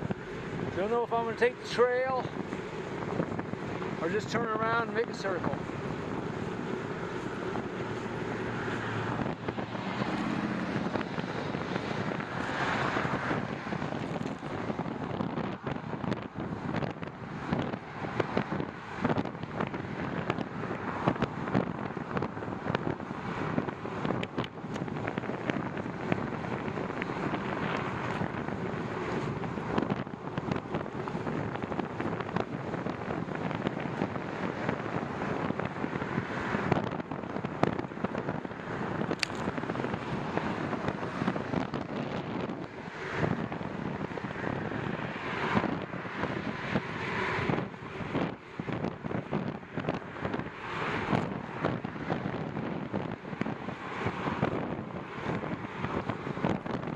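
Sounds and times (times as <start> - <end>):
wind buffeting microphone: 0.0 - 56.9
crackles and clicks: 39.1 - 40.1.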